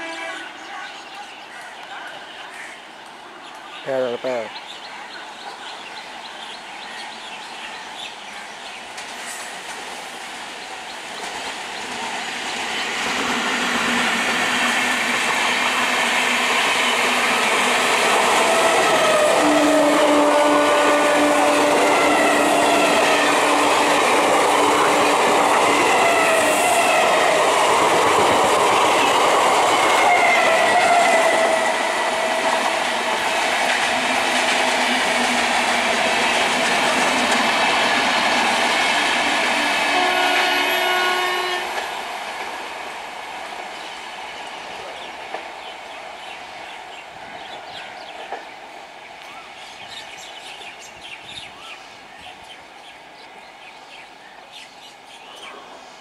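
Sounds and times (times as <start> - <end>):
train wheels clattering on rails: 8.7 - 19.4, 21.5 - 40.6, 47.4 - 48.6.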